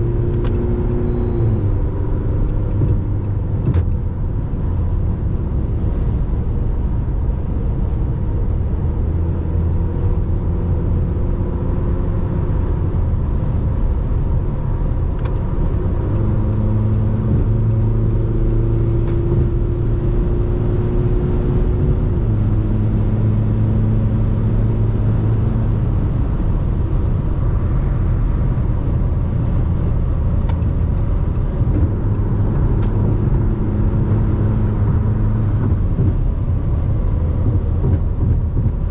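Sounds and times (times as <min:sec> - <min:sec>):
road rumble: 0:00.0 - 0:38.9.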